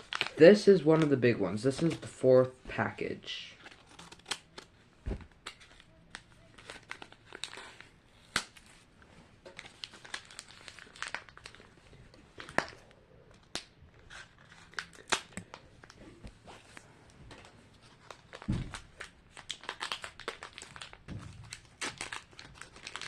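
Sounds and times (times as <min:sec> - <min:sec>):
plastic wrapper crinkling: 0:00.0 - 0:01.1, 0:05.3 - 0:08.6, 0:09.4 - 0:16.0, 0:17.4 - 0:23.0.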